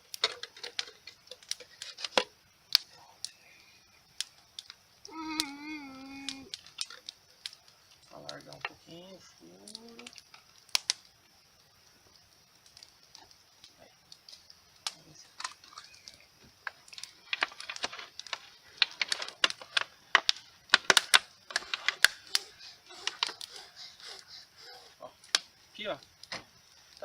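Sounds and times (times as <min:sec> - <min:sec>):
plastic bottle clicking and crackling: 0:14.9 - 0:23.6.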